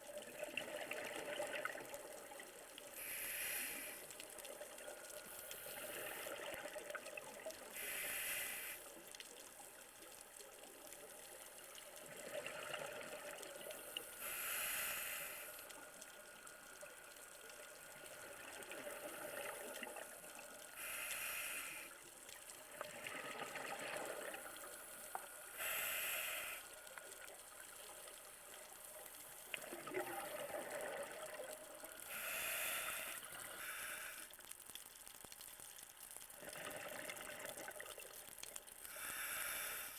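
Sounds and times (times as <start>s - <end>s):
regulator breathing hiss: 3.0s - 4.2s, 5.2s - 6.5s, 7.7s - 9.0s, 13.7s - 15.9s, 20.7s - 22.0s, 24.5s - 27.0s, 32.0s - 34.4s, 38.9s - 39.9s.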